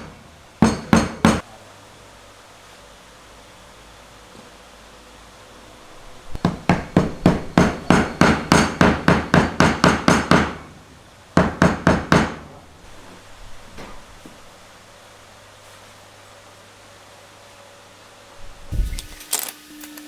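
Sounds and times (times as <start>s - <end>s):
hammer striking wood: 0.6s - 1.4s, 6.4s - 10.7s, 11.4s - 12.5s.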